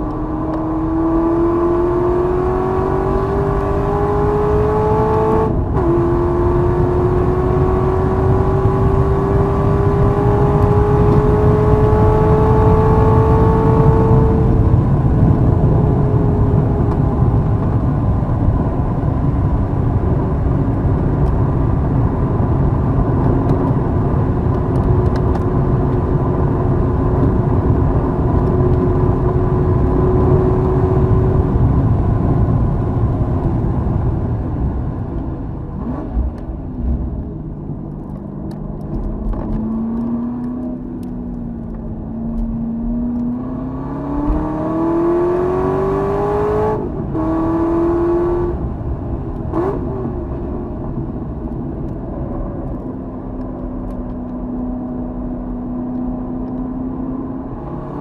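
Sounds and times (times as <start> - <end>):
race car engine revving: 35.7 - 48.7.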